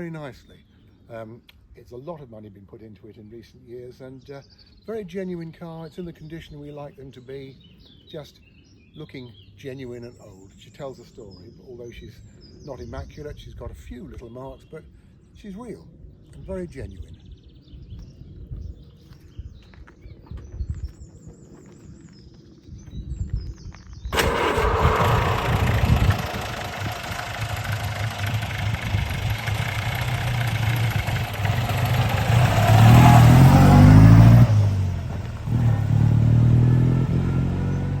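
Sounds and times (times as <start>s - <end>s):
car engine revving: 24.2s - 38.0s.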